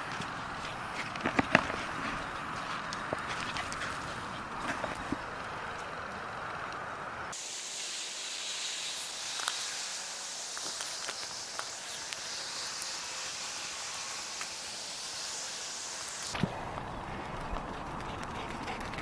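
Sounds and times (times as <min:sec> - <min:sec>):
rain hissing: 0:05.2 - 0:18.0.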